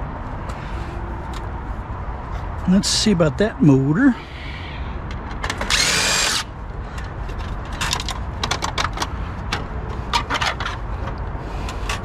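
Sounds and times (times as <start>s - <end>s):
cordless drill whirring: 5.6s - 6.5s.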